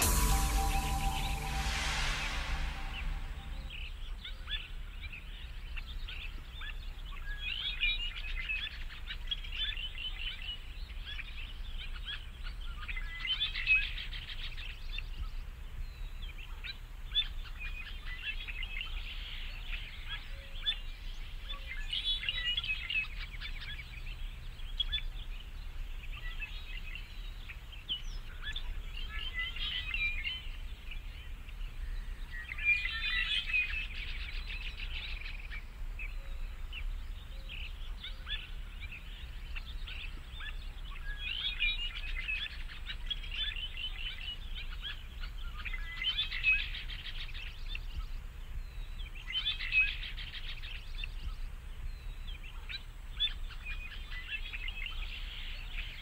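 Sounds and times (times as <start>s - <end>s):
low hum: 0.0s - 4.4s
small birds chirping: 2.8s - 56.0s.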